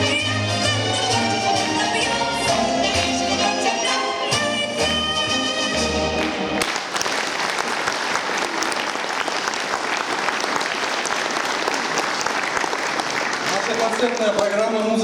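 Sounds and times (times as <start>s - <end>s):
backing music: 0.0s - 6.9s
audience applauding: 5.8s - 15.0s.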